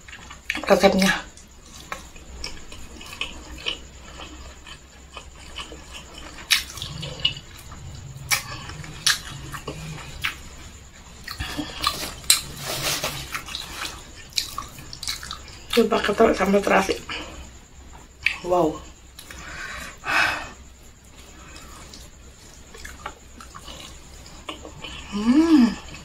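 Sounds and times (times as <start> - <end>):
wet chewing and lip smacks: 1.4 - 10.5, 13.3 - 15.8, 21.4 - 25.0
low hum: 5.0 - 18.2.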